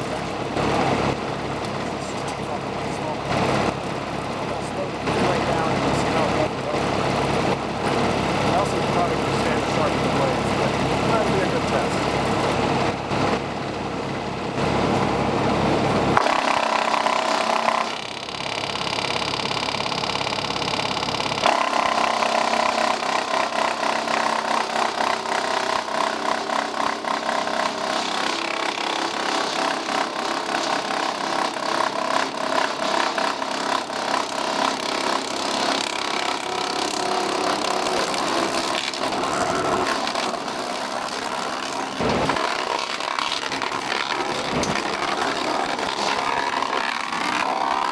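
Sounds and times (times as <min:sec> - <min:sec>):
wood chipper splintering wood: 0:00.0 - 0:47.9
wood chipper whining: 0:00.0 - 0:47.9.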